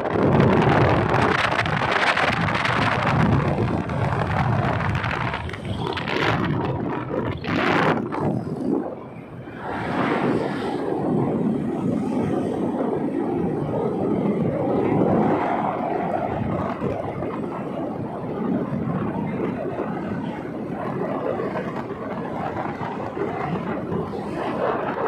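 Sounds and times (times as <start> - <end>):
motorcycle engine and road drone: 0.0 - 25.0
wind rushing over microphone: 0.0 - 25.0.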